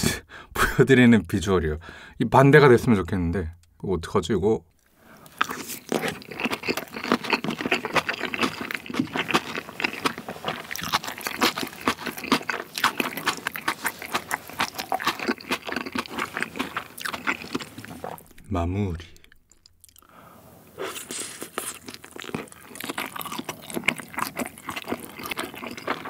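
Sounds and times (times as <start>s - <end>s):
wet chewing smacks: 5.3s - 18.4s, 21.0s - 26.0s.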